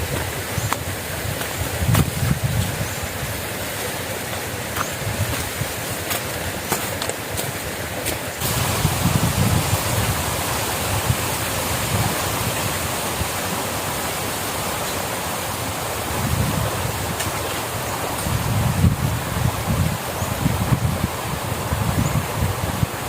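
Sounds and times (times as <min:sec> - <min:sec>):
wind buffeting microphone: 0:00.0 - 0:03.5, 0:04.5 - 0:06.1, 0:08.4 - 0:13.5, 0:16.0 - 0:23.0
river rushing: 0:00.0 - 0:23.0.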